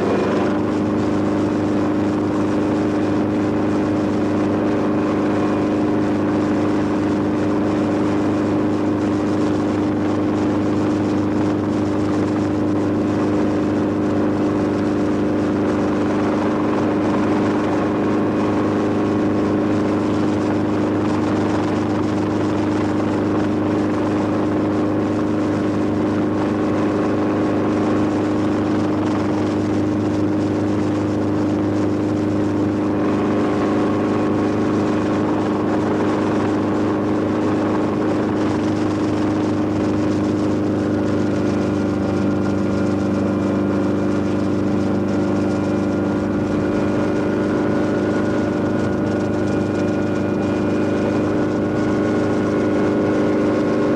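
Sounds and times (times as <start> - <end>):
engine drone: 0.0 - 53.9.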